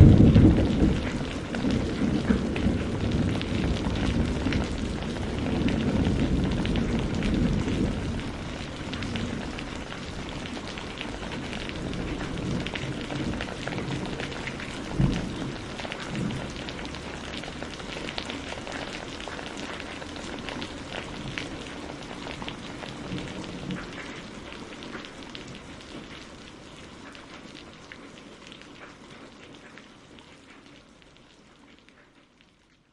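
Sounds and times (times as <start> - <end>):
low rumble: 0.0 - 10.4
steady rain falling: 0.0 - 32.9.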